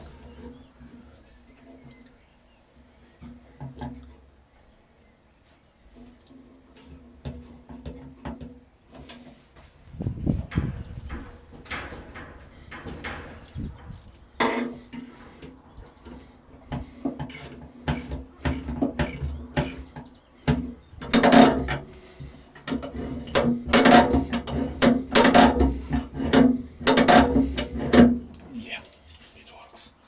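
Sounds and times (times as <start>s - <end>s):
metallic clicks knocks and rattles: 10.4s - 14.8s, 20.5s - 21.9s, 22.6s - 29.3s.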